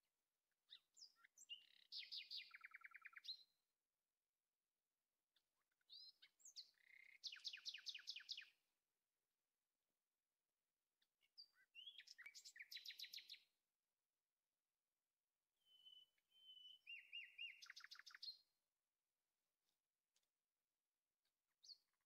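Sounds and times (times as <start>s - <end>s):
songbird singing: 0.6s - 3.7s, 5.3s - 8.7s, 11.0s - 13.6s, 15.5s - 18.7s, 21.2s - 22.0s.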